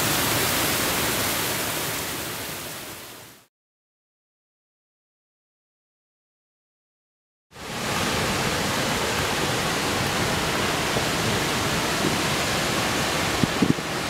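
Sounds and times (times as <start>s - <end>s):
waterfall rushing: 0.0s - 3.5s, 7.6s - 14.0s.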